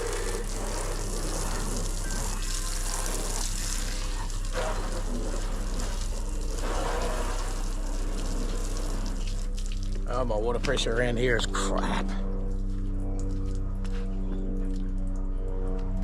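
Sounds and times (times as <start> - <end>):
hose spraying water: 0.0 - 10.3.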